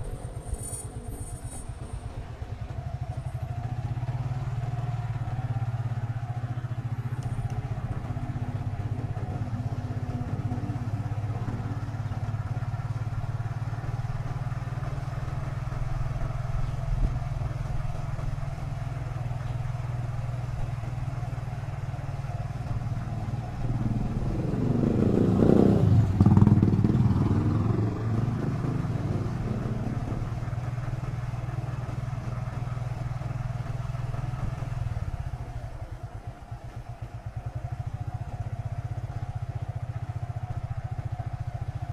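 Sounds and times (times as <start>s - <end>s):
motorcycle engine running: 0.0s - 41.9s
louder engine: 22.7s - 32.9s.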